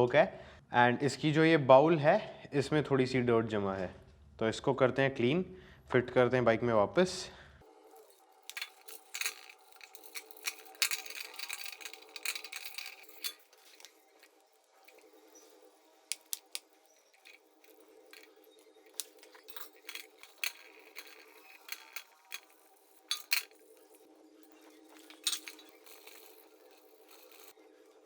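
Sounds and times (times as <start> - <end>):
metal parts and tools clinking: 7.8 - 28.0.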